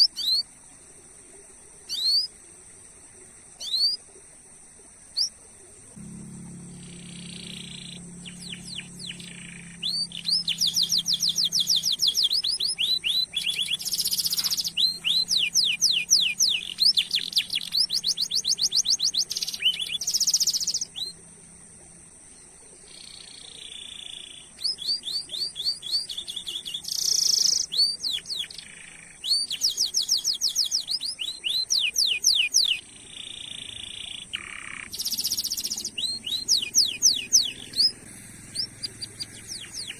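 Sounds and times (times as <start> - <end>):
canary trilling: 6.5 - 21.2, 22.9 - 39.9.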